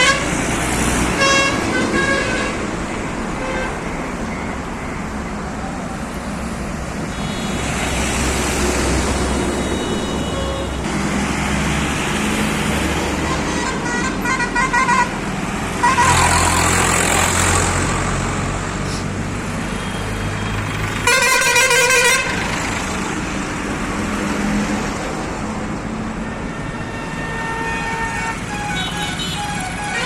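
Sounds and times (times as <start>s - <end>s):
loud horn blast: 0.0s - 0.4s, 1.1s - 2.7s, 7.1s - 8.0s, 13.2s - 15.1s, 15.8s - 16.6s, 21.0s - 22.5s
heavy vehicle engine running: 15.2s - 26.0s.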